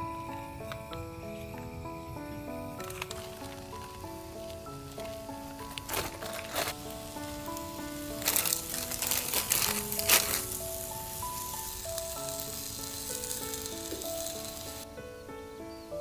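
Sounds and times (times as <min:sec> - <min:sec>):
soft background music: 0:00.0 - 0:16.0
food frying in a pan: 0:05.8 - 0:14.9.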